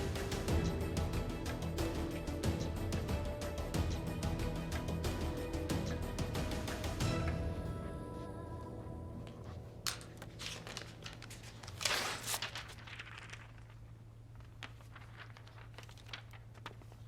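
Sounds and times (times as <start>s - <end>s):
low room hum: 7.4s - 17.0s
paper rustling: 9.2s - 17.0s.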